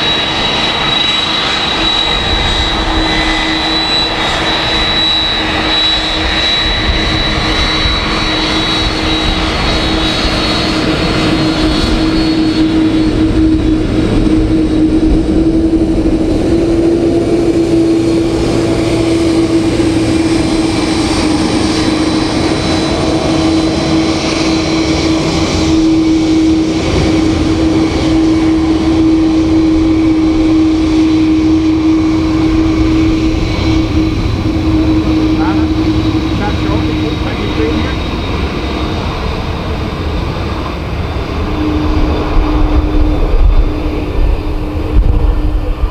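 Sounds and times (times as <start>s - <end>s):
higher jet whine: 0.0s - 45.9s
jet engines running: 0.0s - 45.9s.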